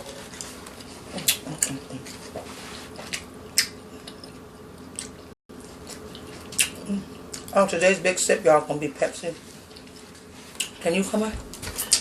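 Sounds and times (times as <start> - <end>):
wet mouth smacks and chewing: 3.1 - 7.5.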